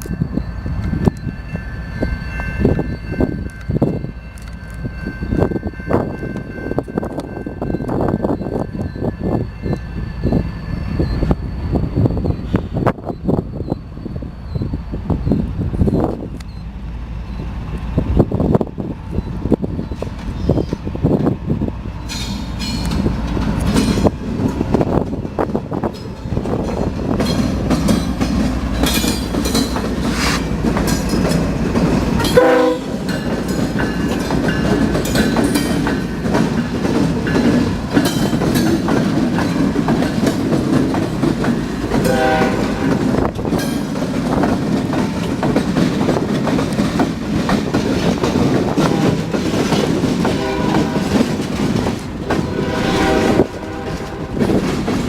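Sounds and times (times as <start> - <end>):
train rumbling past: 0.0 - 55.0
train wheels clattering: 22.0 - 55.0.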